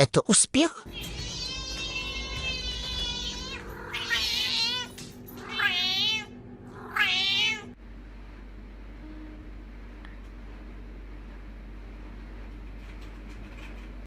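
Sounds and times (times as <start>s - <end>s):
cat meowing: 0.9s - 7.8s.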